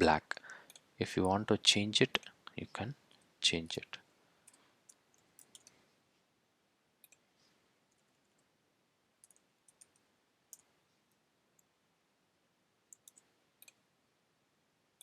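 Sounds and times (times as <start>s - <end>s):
computer keyboard and mouse clicks: 4.5s - 5.8s, 9.2s - 10.7s, 12.9s - 13.8s.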